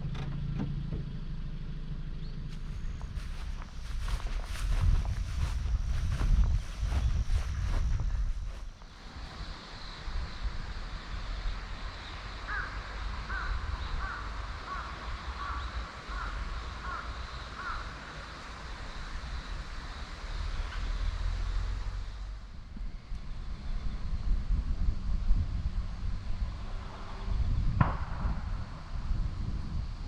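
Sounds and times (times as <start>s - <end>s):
steady low rumble: 1.5s - 30.0s
crow cawing: 12.4s - 19.2s.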